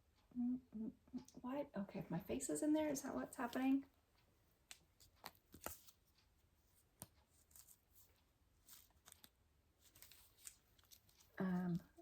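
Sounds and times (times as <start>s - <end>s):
faint rustling of hats: 3.3s - 12.0s.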